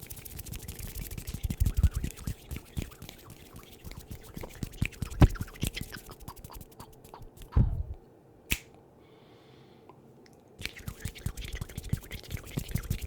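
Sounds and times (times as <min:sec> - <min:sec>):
brush scratching on microphone: 0:00.0 - 0:07.4, 0:10.6 - 0:13.0
heavy thump on microphone: 0:07.6 - 0:08.0.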